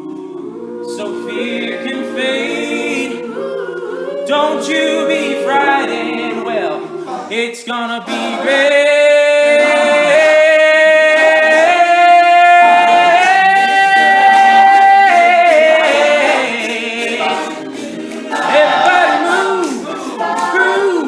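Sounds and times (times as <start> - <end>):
men's a cappella group singing: 0.0 - 21.0.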